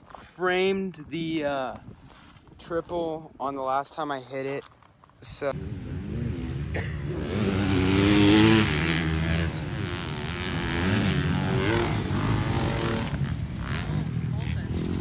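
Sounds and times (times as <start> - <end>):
dirt bike engine revving: 5.5 - 15.0.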